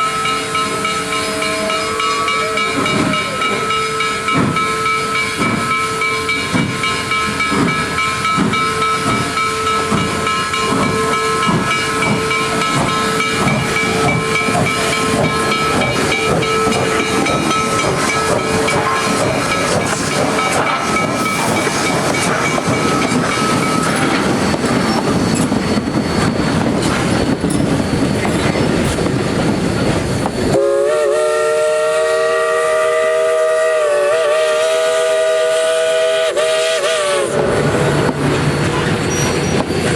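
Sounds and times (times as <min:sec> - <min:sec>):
chime whistle blowing: 0:00.0 - 0:26.1
steam hiss: 0:00.0 - 0:39.9
steam locomotive chuffing: 0:00.0 - 0:39.9.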